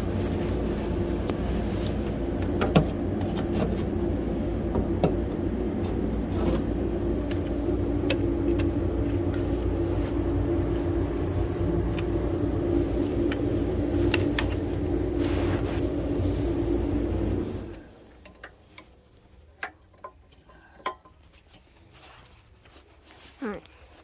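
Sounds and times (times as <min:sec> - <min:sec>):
machine low drone: 0:00.0 - 0:18.9
sharp clicks and knocks: 0:02.0 - 0:03.9, 0:04.7 - 0:09.6.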